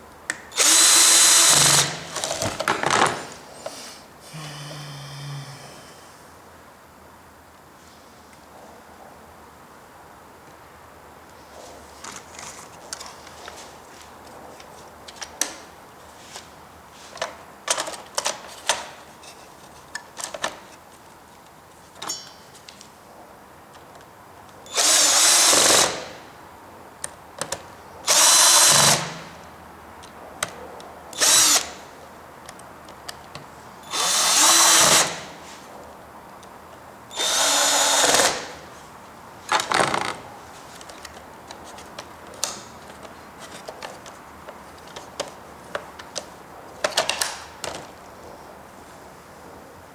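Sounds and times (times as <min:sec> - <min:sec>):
electric screwdriver running: 0:00.6 - 0:02.4, 0:24.7 - 0:26.0, 0:28.1 - 0:29.2, 0:31.2 - 0:31.7, 0:33.9 - 0:35.2, 0:37.2 - 0:38.5.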